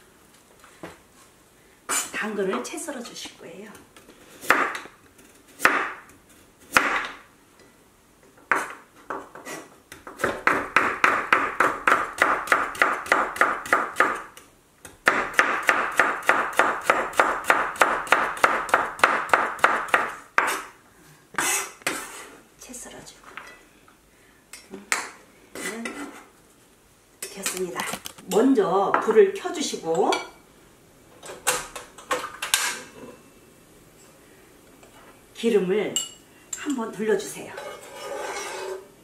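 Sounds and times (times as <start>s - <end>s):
knife chopping carrot on wooden board: 9.4s - 20.7s.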